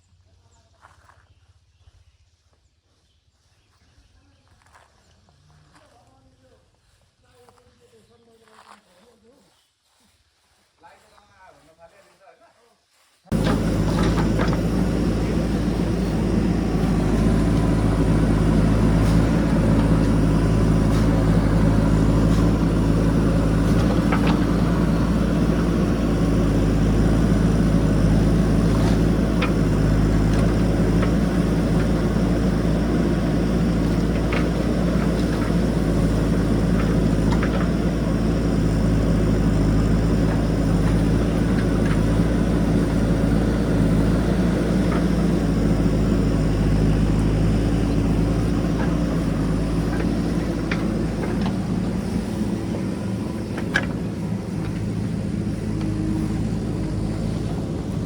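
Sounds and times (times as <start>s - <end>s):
diesel engine running: 13.3s - 58.0s.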